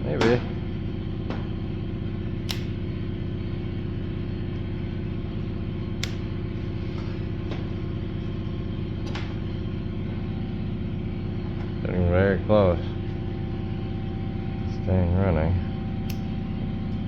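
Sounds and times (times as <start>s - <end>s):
two-stroke engine running: 0.0s - 17.0s
sharp clicks: 2.4s - 2.8s, 6.0s - 6.2s.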